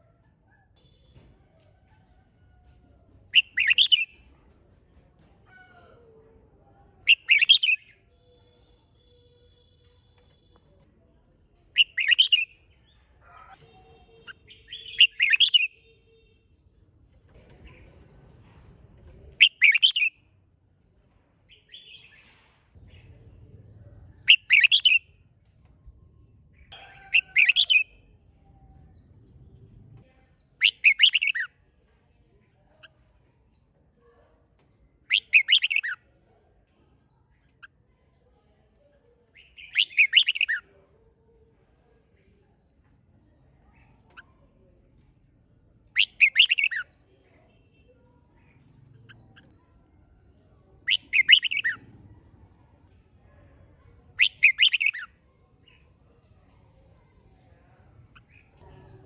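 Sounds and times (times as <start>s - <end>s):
bird singing short phrases: 3.3s - 4.1s, 6.8s - 10.8s, 13.6s - 16.3s, 30.3s - 31.5s.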